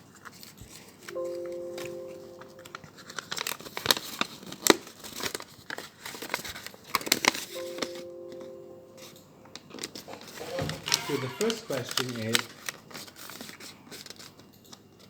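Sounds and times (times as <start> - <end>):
steady chord-like tone: 1.2 - 3.0, 7.6 - 9.9
paper crinkling: 2.7 - 7.4, 9.6 - 14.4.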